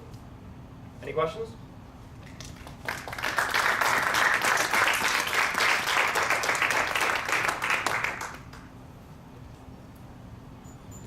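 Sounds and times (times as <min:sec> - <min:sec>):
audience applauding: 0:02.3 - 0:08.7.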